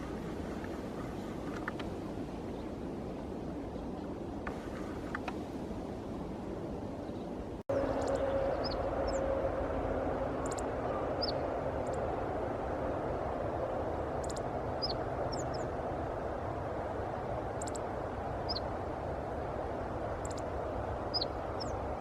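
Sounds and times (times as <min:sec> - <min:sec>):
songbirds chirping: 0:00.0 - 0:05.6, 0:06.9 - 0:09.4, 0:10.2 - 0:12.1, 0:20.2 - 0:22.0
distant traffic rumble: 0:00.0 - 0:22.0
faint droning tone: 0:07.7 - 0:13.9.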